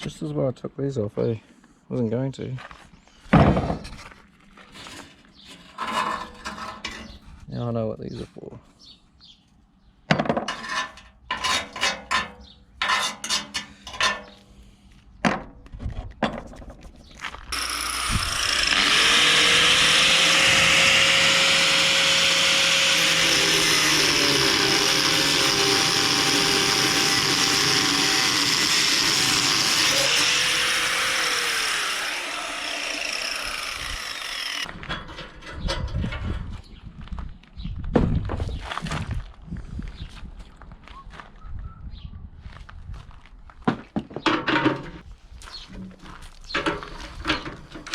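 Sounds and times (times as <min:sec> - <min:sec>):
power tool running with hiss: 0:17.5 - 0:34.7.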